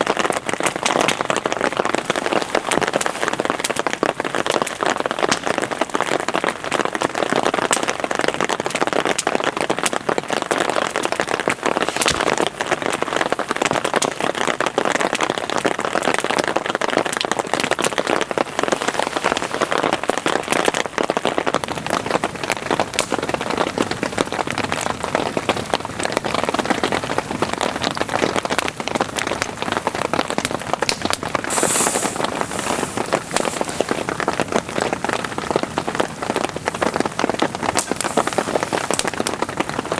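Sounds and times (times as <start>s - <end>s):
heavy rain falling: 0.0s - 39.9s
short high hiss: 31.4s - 34.1s.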